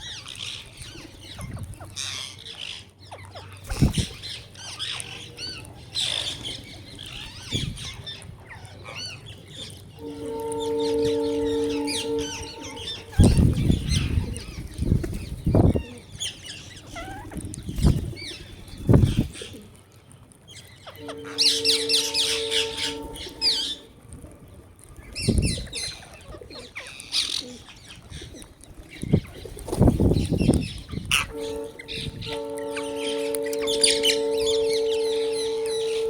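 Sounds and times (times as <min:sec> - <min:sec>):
small birds chirping: 0:00.0 - 0:23.9, 0:24.9 - 0:36.0
steady low hum: 0:02.9 - 0:16.9, 0:20.9 - 0:24.8
bird wing flutters: 0:03.6 - 0:04.2.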